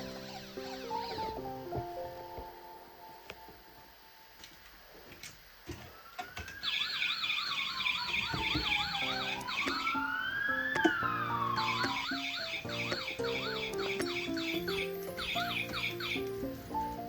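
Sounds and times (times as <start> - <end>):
electronic toy siren: 5.9 - 16.9.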